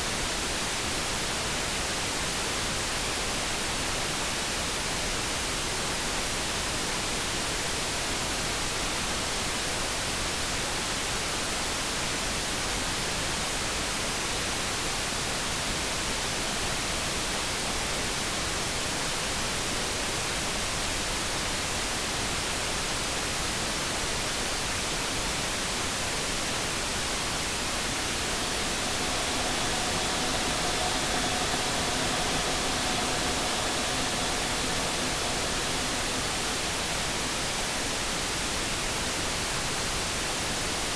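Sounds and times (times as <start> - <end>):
brown noise hiss: 25.0 - 40.9
faint electric kettle hum: 27.2 - 38.0.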